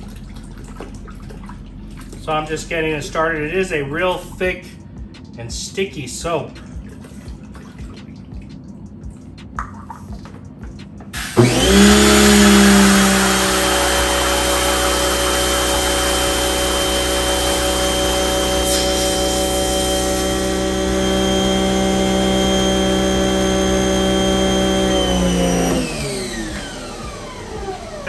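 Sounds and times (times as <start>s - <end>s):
electric motor whining: 11.2s - 28.0s.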